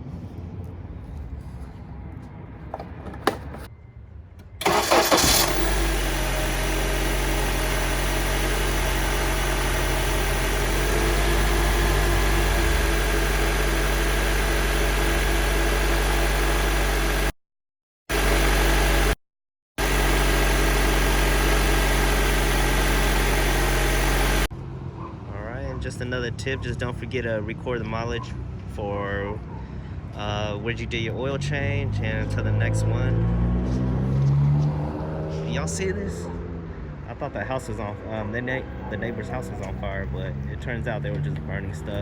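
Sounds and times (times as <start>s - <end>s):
car engine starting and idling: 2.7s - 3.7s, 4.4s - 17.3s, 18.1s - 19.2s, 19.8s - 24.5s
ignition click: 4.4s - 5.8s.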